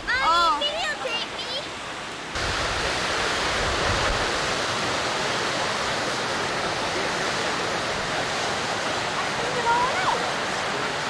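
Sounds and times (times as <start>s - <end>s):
steady rushing noise: 2.4s - 11.0s.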